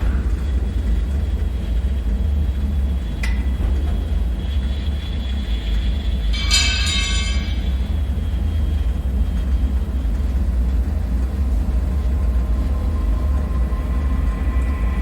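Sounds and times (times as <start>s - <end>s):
deep ambient drone rumble: 0.0s - 15.0s
metallic strike ringing: 6.3s - 8.2s.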